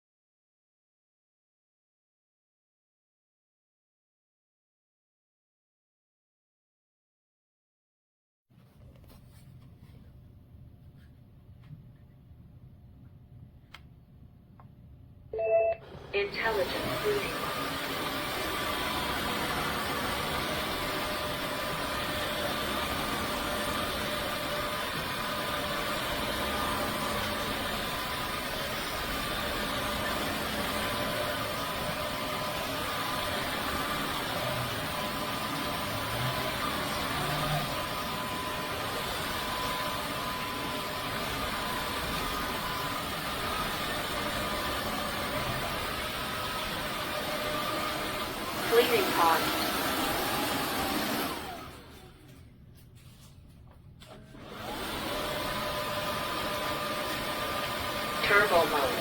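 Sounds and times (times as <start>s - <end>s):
vacuum mop motor whining: 15.4s - 52.4s, 54.1s - 59.0s.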